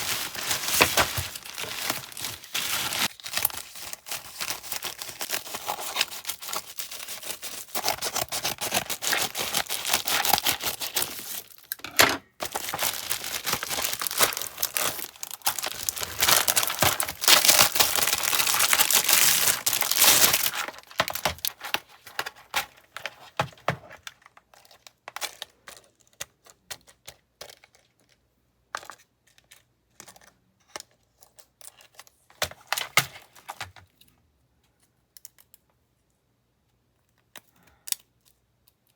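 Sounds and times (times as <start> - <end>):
packaging crinkling and tearing: 0.0 - 11.8, 12.4 - 25.6.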